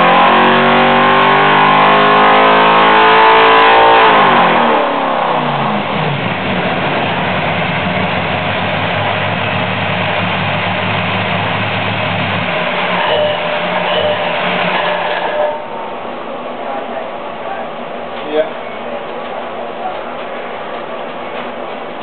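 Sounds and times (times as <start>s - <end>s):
engine revving down to idle: 0.0s - 15.5s.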